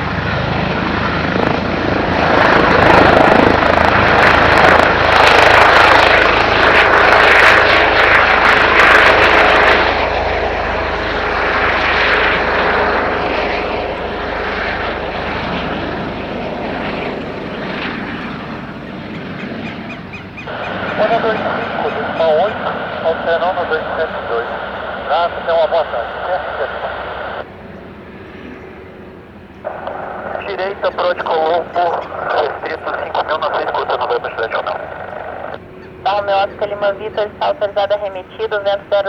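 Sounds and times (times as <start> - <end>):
helicopter taking off: 0.0 - 39.0.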